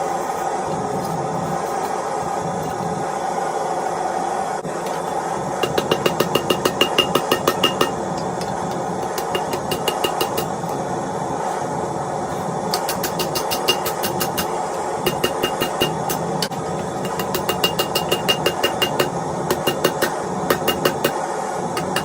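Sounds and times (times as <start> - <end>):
steady running hum: 4.5 - 22.0
hammer blows on hot steel: 4.8 - 10.7, 12.7 - 21.2.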